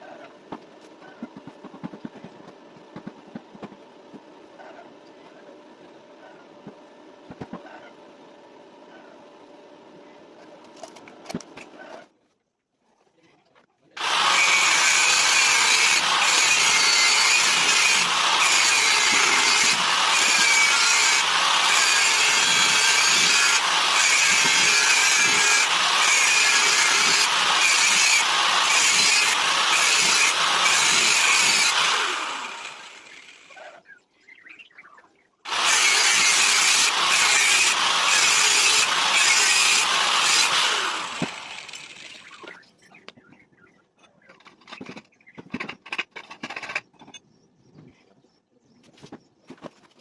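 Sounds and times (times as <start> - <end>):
power tool grating under load: 14.0 - 33.6, 35.5 - 42.5.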